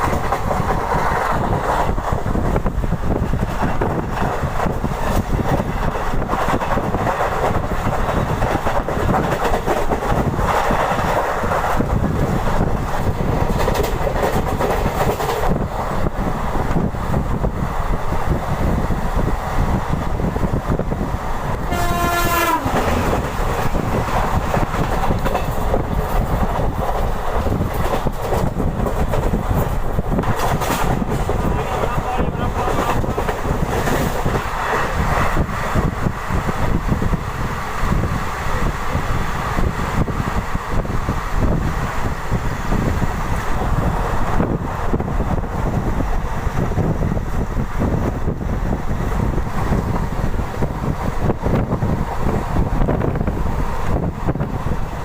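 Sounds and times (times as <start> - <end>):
train wheels rumbling on rails: 0.0 - 55.0
train horn blast: 21.7 - 23.2.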